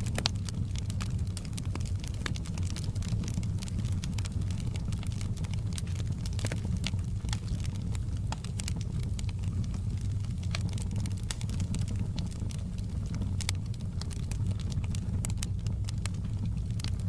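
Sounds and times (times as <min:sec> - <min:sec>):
log fire crackling and popping: 0:00.0 - 0:17.0
low fire rumble: 0:00.0 - 0:17.0.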